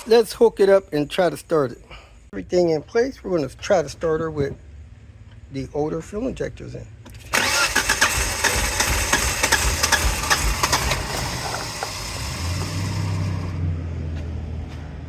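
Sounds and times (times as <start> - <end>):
car engine cranking: 7.1 - 13.6.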